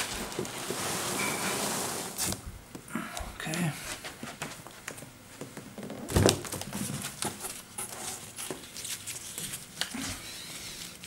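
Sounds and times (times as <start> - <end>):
cardboard boxes rustling and scraping: 0.0 - 2.4.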